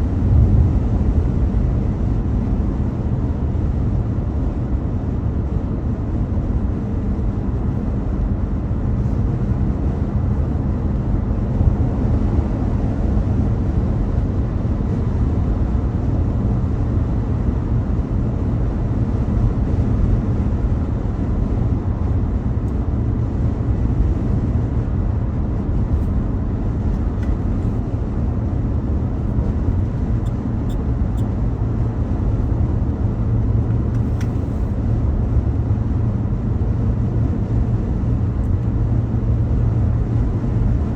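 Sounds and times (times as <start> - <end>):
car driving at road speed: 0.0 - 40.9.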